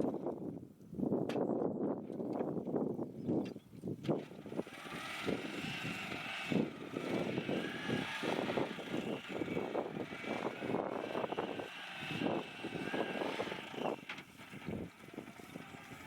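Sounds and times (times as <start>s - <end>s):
electric motor whining: 4.1s - 16.0s.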